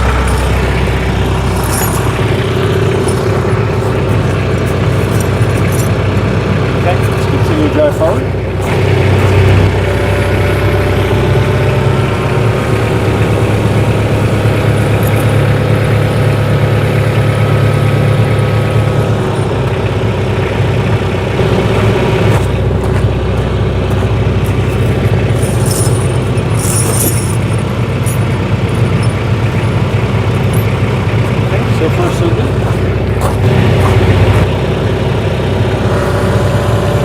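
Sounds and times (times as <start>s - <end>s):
metal chain links jingling: 0.0s - 6.0s, 14.7s - 15.5s, 24.4s - 30.9s
tractor engine running: 0.0s - 37.0s.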